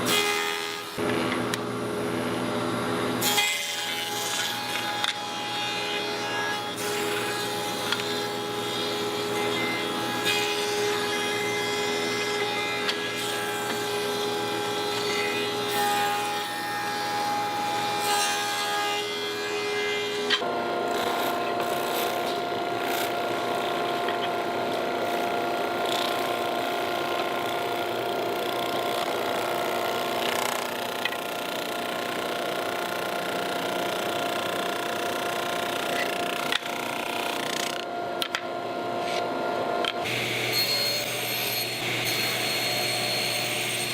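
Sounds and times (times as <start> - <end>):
power tool cutting into wood: 6.6 - 32.4.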